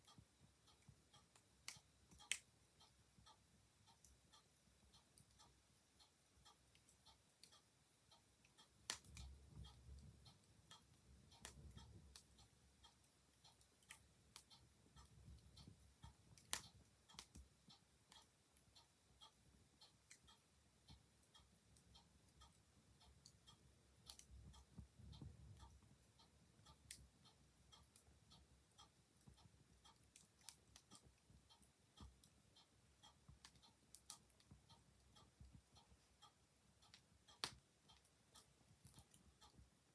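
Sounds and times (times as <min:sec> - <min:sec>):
clock ticking: 0:00.0 - 0:39.9
wood fire crackling: 0:08.8 - 0:10.2, 0:13.6 - 0:17.5.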